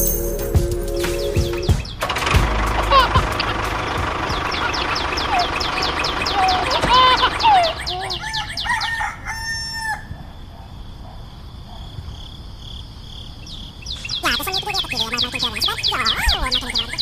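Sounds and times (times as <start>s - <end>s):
small birds chirping trills: 4.0s - 9.1s, 12.2s - 17.0s
rooster crowing: 7.2s - 10.3s.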